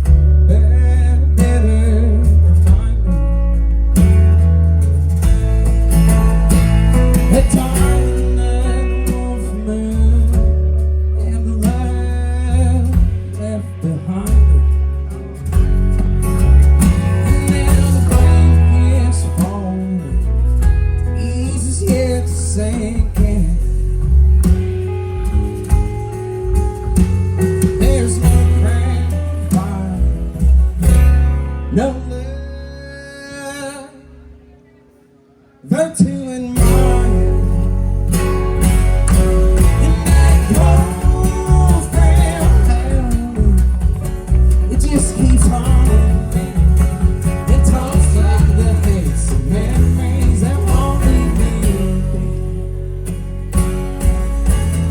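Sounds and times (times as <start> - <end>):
drums: 0.0 - 33.6, 35.9 - 54.9
bass guitar: 0.0 - 34.8, 36.0 - 54.9
acoustic guitar: 0.0 - 54.9
person singing: 17.0 - 20.4, 35.7 - 38.0, 39.2 - 53.0.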